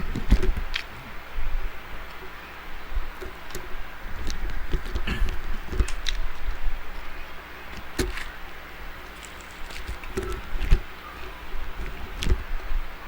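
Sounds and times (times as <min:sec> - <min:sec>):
chewing: 0:09.1 - 0:10.5.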